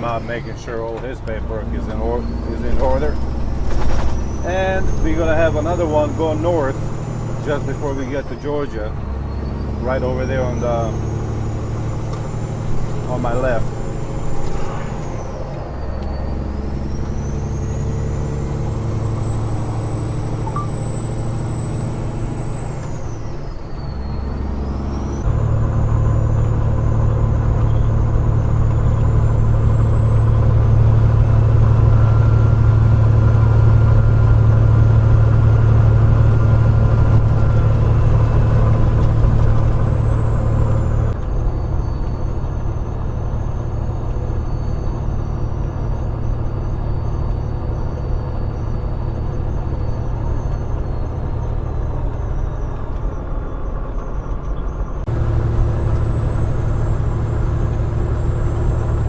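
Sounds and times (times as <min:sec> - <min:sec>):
diesel truck engine pulling: 0:00.0 - 0:59.0
thin high whistle: 0:19.2 - 0:22.9.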